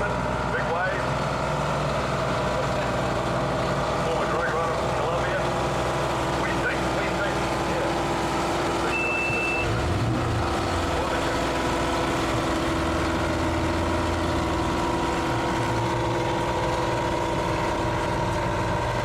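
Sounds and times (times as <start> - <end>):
engine idling: 0.0 - 19.0
high beep: 8.9 - 9.8.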